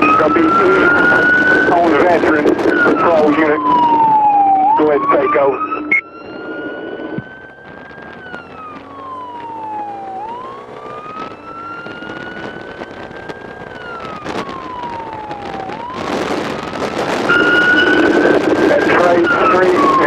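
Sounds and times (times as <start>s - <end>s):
loud wind noise: 0.0s - 20.0s
police siren wailing: 0.0s - 20.0s
motorcycle engine revving: 7.0s - 20.0s.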